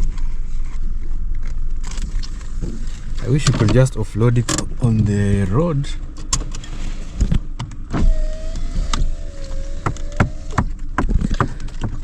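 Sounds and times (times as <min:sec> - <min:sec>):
car rumbling on rough road: 0:00.0 - 0:12.0
knocks and rattles: 0:09.8 - 0:12.0.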